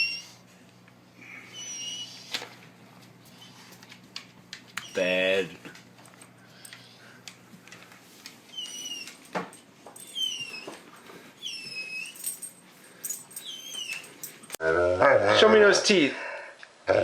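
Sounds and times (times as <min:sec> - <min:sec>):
dog whining: 0:00.0 - 0:00.5, 0:01.2 - 0:02.4, 0:04.8 - 0:05.5, 0:08.5 - 0:09.4, 0:10.0 - 0:14.6.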